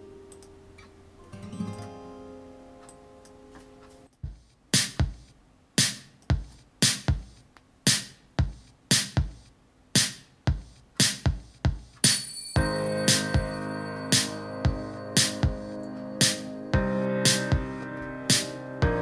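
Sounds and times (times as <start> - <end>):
drum machine beat over loudspeakers: 4.2 - 19.0
recorded song: 4.8 - 19.0.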